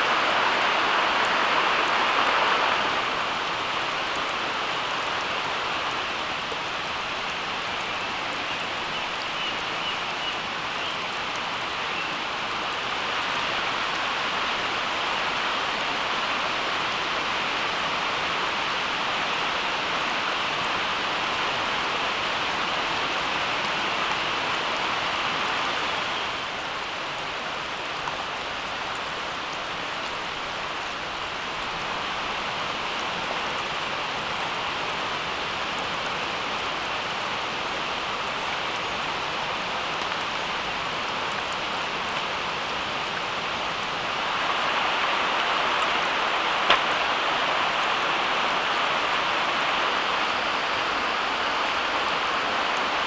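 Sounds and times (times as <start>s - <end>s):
steady rain falling: 0.0s - 53.0s
sharp click: 46.7s - 47.0s.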